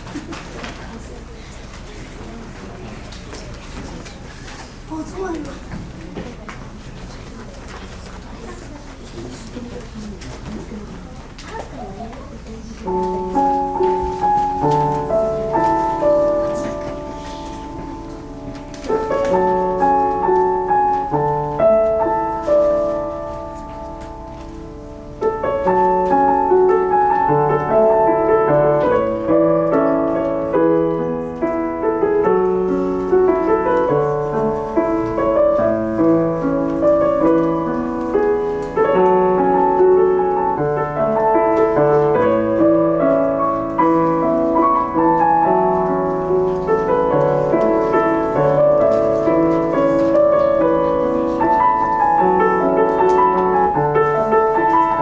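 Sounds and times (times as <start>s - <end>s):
solo piano piece: 11.1s - 55.0s.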